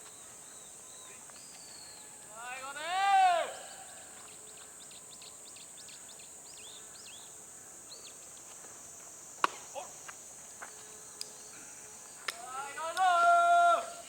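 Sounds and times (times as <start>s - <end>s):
bird chirps: 0.0s - 2.4s, 3.6s - 8.3s
high-pitched insect drone: 3.6s - 14.0s
faint clicks: 9.4s - 11.4s.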